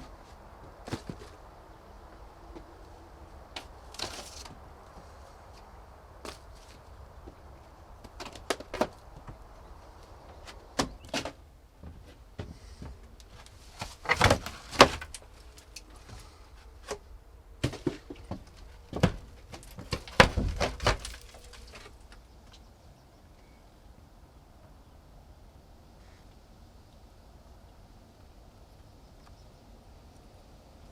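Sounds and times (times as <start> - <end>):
knocks and clunks: 0.0 - 1.4, 5.6 - 9.5, 10.2 - 15.3, 16.8 - 21.9.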